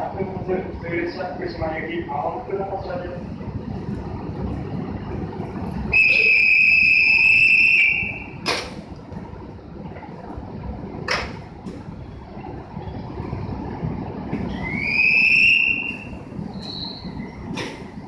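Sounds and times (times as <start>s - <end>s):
low steady rumble: 0.0s - 18.0s
whistle blown in long note: 5.9s - 8.4s, 14.5s - 17.1s
sharp knocks: 8.4s - 8.8s, 11.1s - 11.8s.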